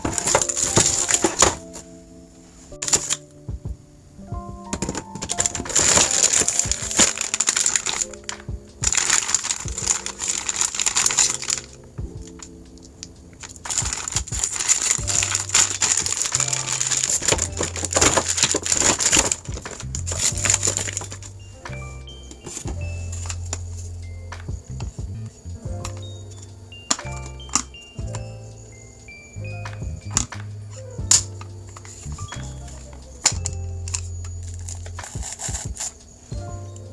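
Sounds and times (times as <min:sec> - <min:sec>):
plastic packaging crinkling: 0:00.0 - 0:01.8, 0:02.8 - 0:03.2, 0:04.8 - 0:21.3, 0:31.9 - 0:36.0
background music: 0:00.0 - 0:36.9.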